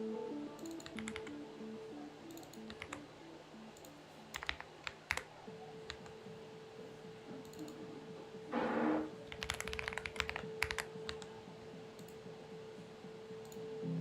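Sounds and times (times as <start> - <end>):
soft background music: 0.0 - 14.0
mechanical keyboard typing: 0.6 - 1.4, 2.3 - 3.0, 3.8 - 6.2, 9.2 - 11.3.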